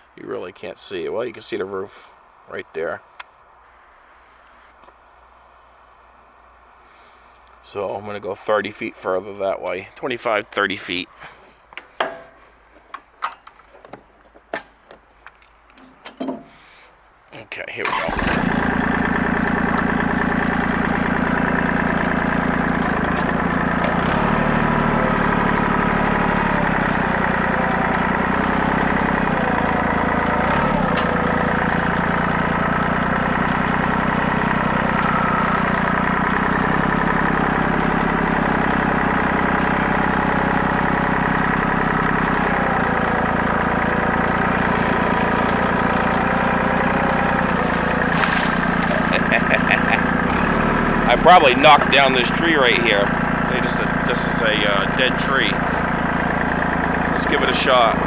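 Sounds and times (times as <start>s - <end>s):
tractor engine running: 17.8s - 58.0s.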